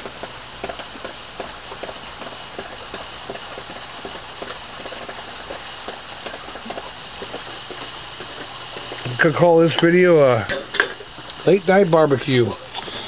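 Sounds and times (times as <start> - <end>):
raindrops tapping on surfaces: 0.0 - 12.6
steady rain hiss: 0.0 - 13.0.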